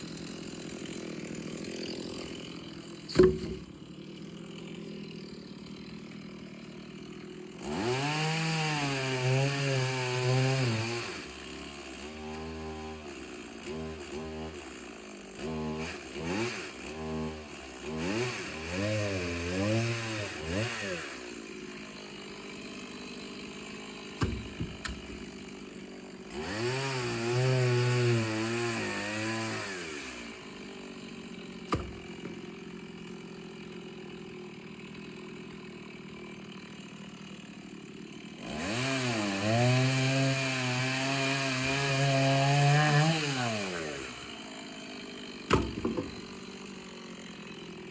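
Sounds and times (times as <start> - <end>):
chainsaw revving and idling: 0.0 - 47.9
sharp knocks: 3.1 - 3.7, 24.2 - 25.3, 31.7 - 32.4, 45.5 - 46.3.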